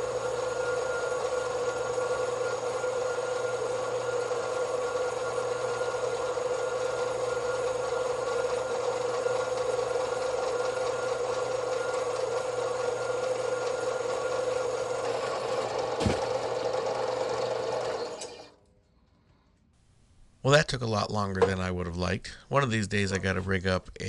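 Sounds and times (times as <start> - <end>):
bandsaw cutting metal: 0.0 - 18.5.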